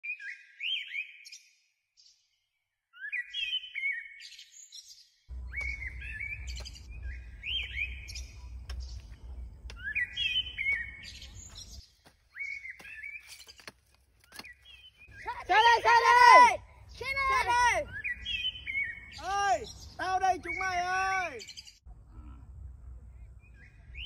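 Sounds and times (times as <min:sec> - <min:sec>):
songbird chirping: 0:00.0 - 0:24.0
low rumble: 0:05.3 - 0:11.8, 0:21.9 - 0:24.0.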